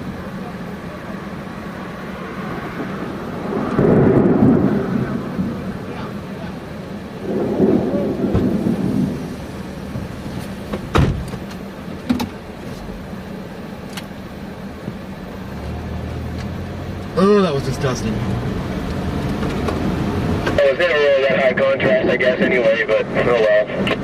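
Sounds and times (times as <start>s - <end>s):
thunder rumbling: 0.0s - 11.8s
vehicle engine hum: 0.0s - 24.0s.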